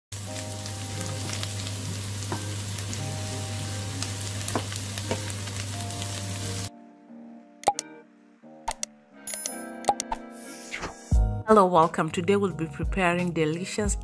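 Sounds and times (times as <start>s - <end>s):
meat sizzling in a frying pan: 0.2s - 6.7s.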